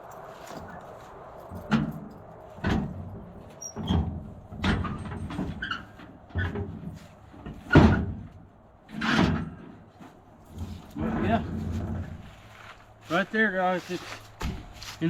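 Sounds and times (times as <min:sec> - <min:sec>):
gear knocking and clunking: 0:01.5 - 0:12.4.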